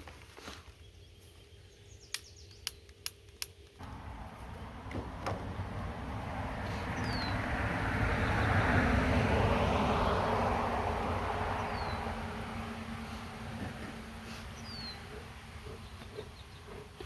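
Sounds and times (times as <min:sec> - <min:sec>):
vehicle passing by: 0:03.8 - 0:17.0.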